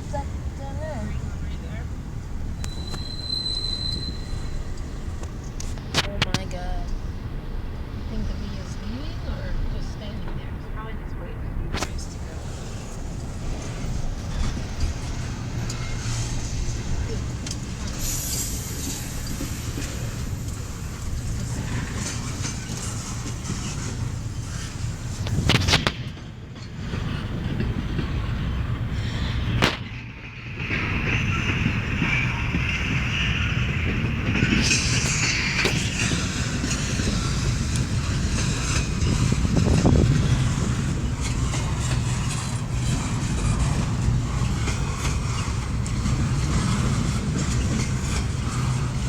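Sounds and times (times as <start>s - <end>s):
freight train wheels rumbling: 0.0s - 49.0s.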